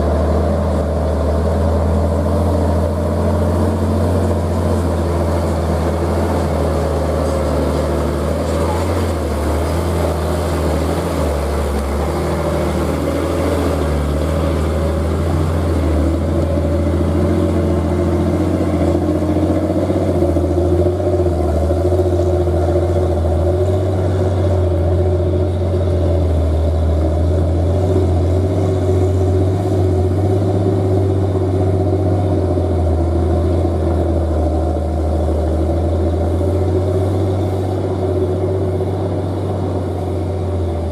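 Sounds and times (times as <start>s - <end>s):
heavy truck engine running: 0.0s - 40.9s.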